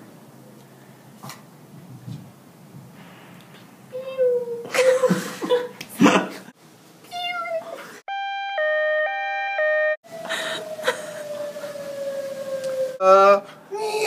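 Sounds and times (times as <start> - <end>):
long falling tone: 8.1 - 13.2.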